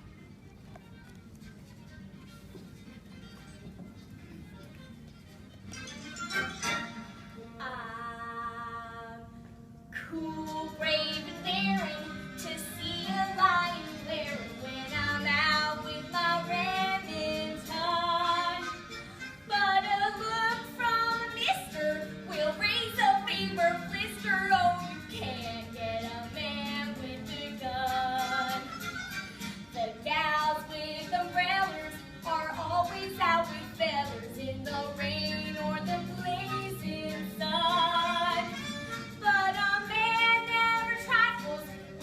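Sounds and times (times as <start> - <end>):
musical accompaniment: 0.0 - 42.0
girl singing with vibrato: 7.4 - 9.3, 10.0 - 18.8, 19.5 - 29.0, 29.7 - 42.0.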